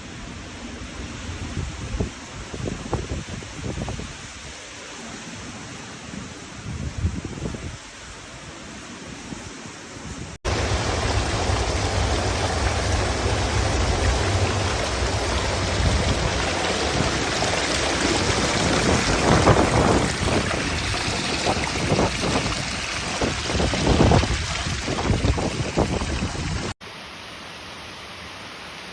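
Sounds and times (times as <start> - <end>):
wind: 0.0 - 28.9
heavy rain: 10.4 - 28.9
deep rumble: 10.5 - 26.8.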